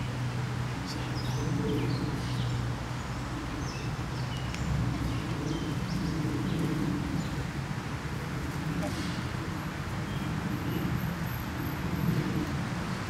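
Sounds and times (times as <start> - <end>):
songbirds chirping: 0.0 - 7.6
low outdoor rumble: 0.0 - 13.0.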